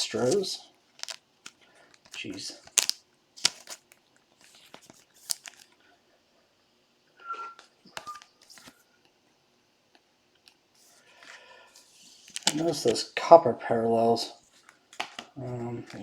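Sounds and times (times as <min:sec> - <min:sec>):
packaging rustling and crinkling: 0:00.0 - 0:05.8, 0:12.2 - 0:13.0
cards clicking: 0:00.2 - 0:05.7, 0:08.0 - 0:08.7, 0:12.3 - 0:13.0
faint squeak: 0:07.2 - 0:08.8.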